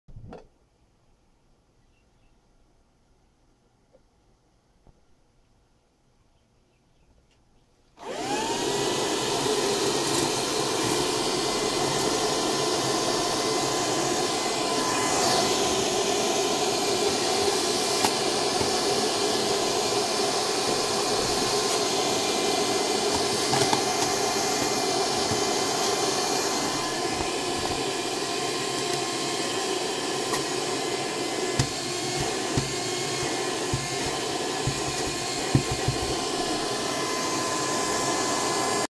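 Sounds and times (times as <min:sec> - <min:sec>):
handheld vacuum cleaner running: 0:08.0 - 0:38.9.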